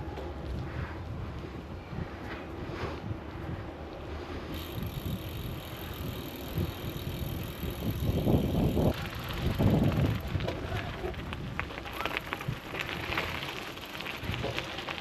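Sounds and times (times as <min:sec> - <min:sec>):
wind on microphone: 0:04.4 - 0:11.6.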